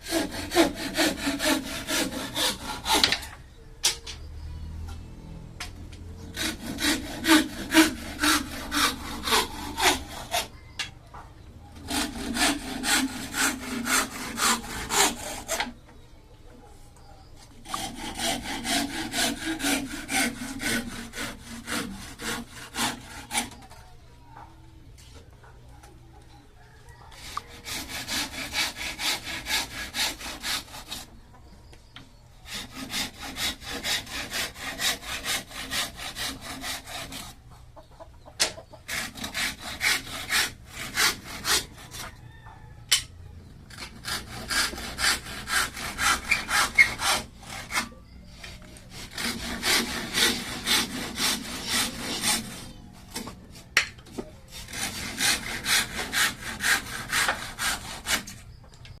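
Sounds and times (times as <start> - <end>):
hand saw cutting bamboo: 0.0 - 3.4, 6.2 - 10.6, 11.8 - 15.8, 17.6 - 23.7, 27.2 - 31.1, 32.5 - 37.4, 38.9 - 42.1, 43.7 - 53.9, 54.5 - 58.5.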